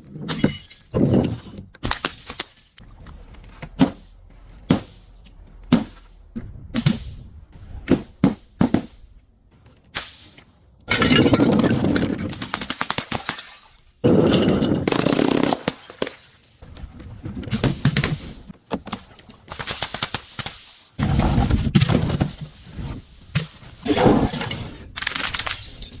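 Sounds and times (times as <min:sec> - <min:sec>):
objects crunching and cracking: 0:00.0 - 0:10.0.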